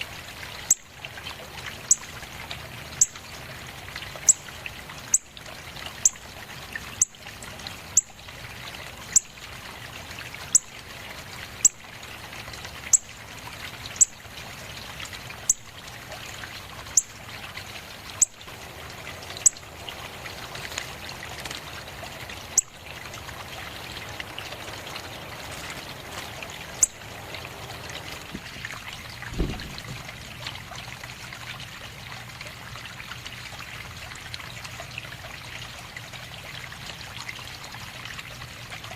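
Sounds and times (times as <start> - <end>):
trickle of running water: 0.0 - 38.9
low thump: 29.3 - 30.0.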